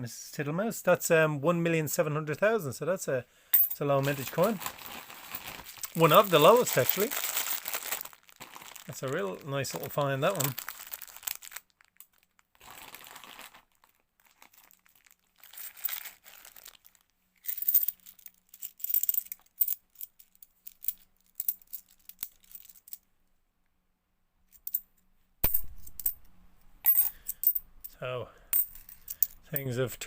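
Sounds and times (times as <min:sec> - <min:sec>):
plastic bag rustling: 0:04.0 - 0:17.1
coins clicking together: 0:17.5 - 0:23.0, 0:26.9 - 0:27.6.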